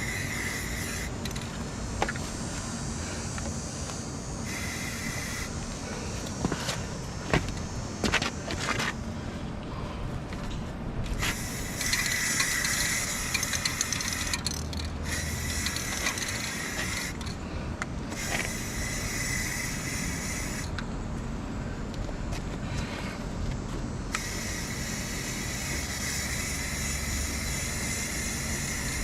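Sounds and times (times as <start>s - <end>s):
spray can hissing: 0.0s - 1.4s, 4.4s - 5.6s, 11.2s - 17.2s, 18.2s - 20.7s, 24.2s - 29.0s.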